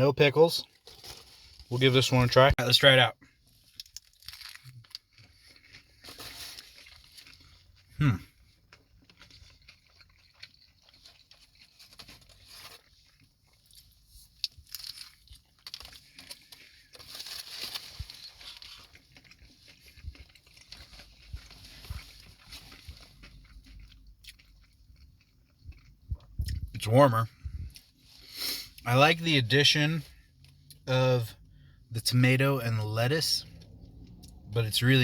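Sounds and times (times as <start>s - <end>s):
person chewing food: 3.3s - 26.7s.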